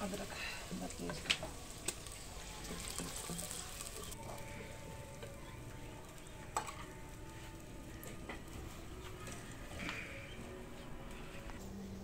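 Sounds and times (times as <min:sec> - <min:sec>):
onions sizzling in oil: 0:00.0 - 0:09.4.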